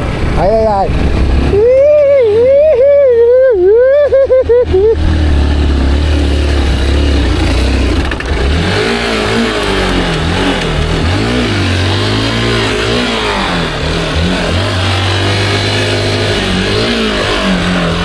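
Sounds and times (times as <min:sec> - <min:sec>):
small motorcycle engine revving: 0:04.5 - 0:18.0.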